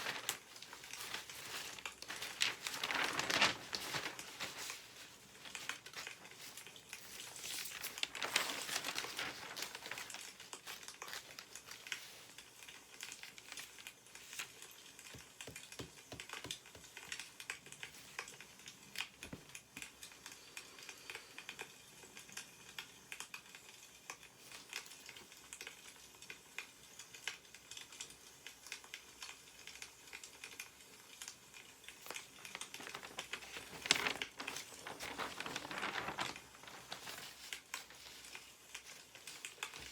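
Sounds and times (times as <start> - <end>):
newspaper pages rustling: 0.0 - 19.9, 31.2 - 39.9
small crackles and ticks: 0.0 - 39.9.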